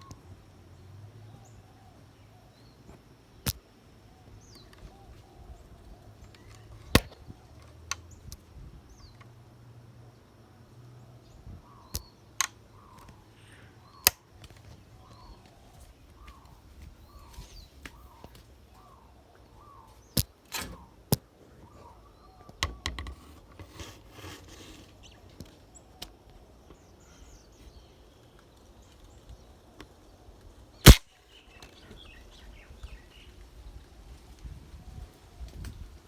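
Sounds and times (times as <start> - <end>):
bird calling: 10.6 - 29.1
sharp clicks and knocks: 22.5 - 26.1
air rifle shot: 30.9 - 31.1.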